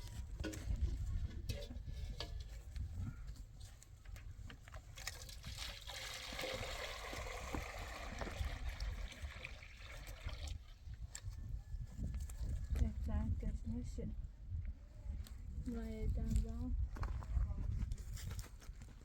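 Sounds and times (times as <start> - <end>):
water running: 5.0 - 10.6.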